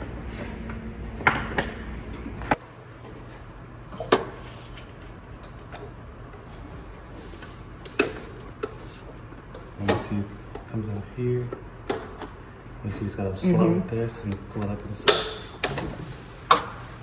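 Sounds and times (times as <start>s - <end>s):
low steady hum: 12.8s - 15.1s.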